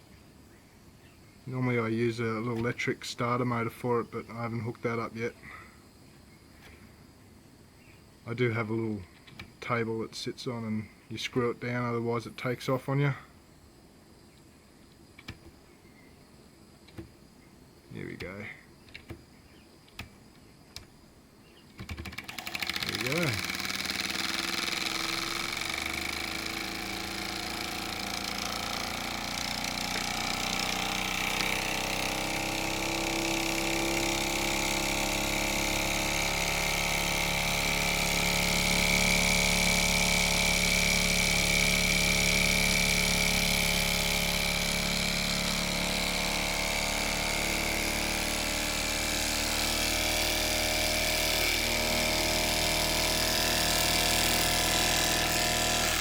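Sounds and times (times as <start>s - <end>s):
miniature steam engine running: 22.0s - 56.0s.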